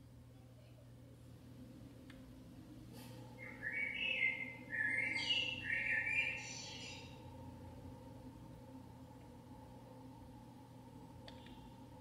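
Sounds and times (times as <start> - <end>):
songbird singing: 3.4 - 7.4.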